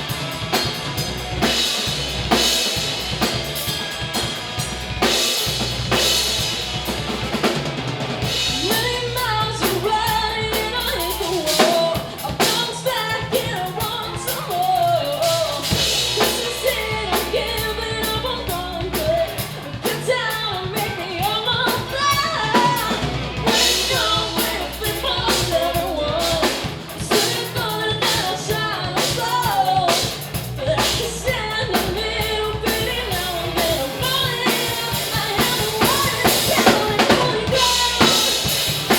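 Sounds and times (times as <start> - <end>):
bass line: 0.0 - 38.9
drum kit: 0.0 - 38.9
person singing: 8.5 - 38.9.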